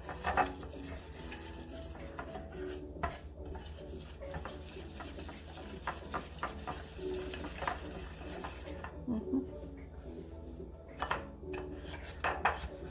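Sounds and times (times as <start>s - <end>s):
utensil clinking against bowl: 0.0s - 9.0s
utensil scraping mixing bowl: 0.0s - 9.0s, 9.6s - 12.9s.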